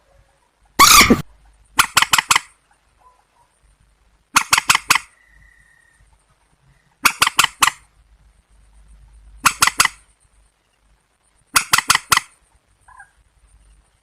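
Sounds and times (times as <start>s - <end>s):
faint high hiss: 0.0s - 14.0s
waterbird cackling calls: 0.8s - 1.2s, 7.0s - 7.9s, 9.4s - 10.0s, 11.6s - 13.2s.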